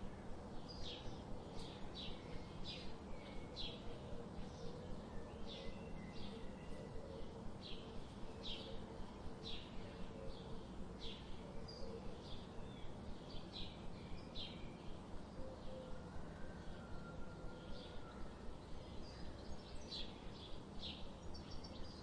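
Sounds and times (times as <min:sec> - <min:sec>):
steady low hum: 0:00.0 - 0:22.0
small birds chirping: 0:18.2 - 0:22.0.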